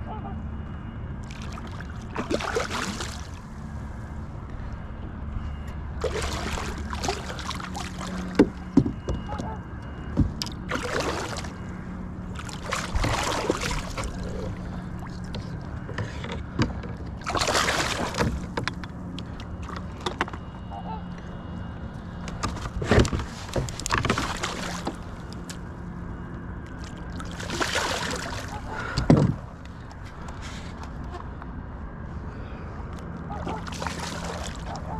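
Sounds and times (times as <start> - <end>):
paddle swishing in water: 12.4 - 16.2.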